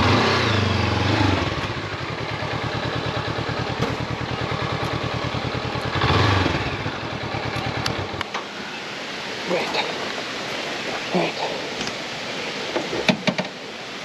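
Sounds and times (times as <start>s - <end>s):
motorcycle engine idling and revving: 0.0s - 9.4s.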